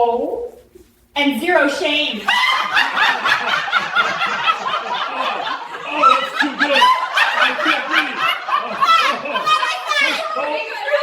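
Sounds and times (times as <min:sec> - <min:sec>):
people laughing: 0:02.2 - 0:11.0.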